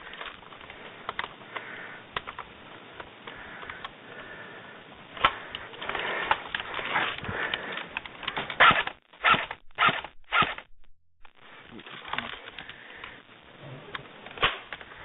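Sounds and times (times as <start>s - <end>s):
close-up sniffing and breathing: 0.0s - 2.2s, 3.2s - 8.4s
scattered clicks: 0.0s - 4.0s, 11.7s - 13.3s
rustling of movement: 0.0s - 10.7s.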